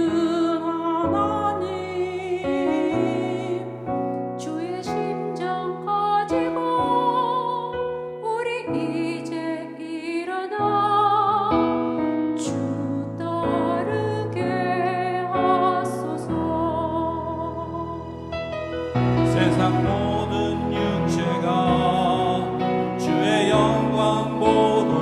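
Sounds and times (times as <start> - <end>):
piano chords: 0.0 - 25.0
choir singing: 18.9 - 25.0.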